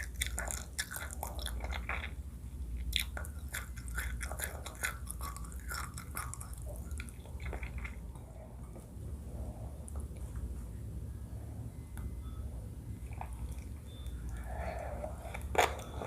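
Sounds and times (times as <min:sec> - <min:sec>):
close chewing with wet clicks: 0:00.0 - 0:08.9, 0:13.1 - 0:16.0.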